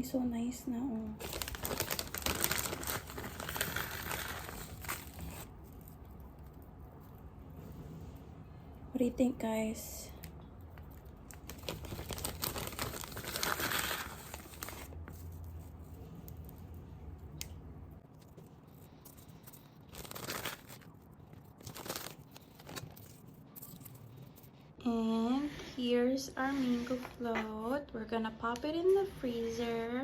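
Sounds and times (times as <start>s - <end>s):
plastic crinkling: 1.2s - 6.0s, 10.8s - 16.6s, 18.1s - 24.5s.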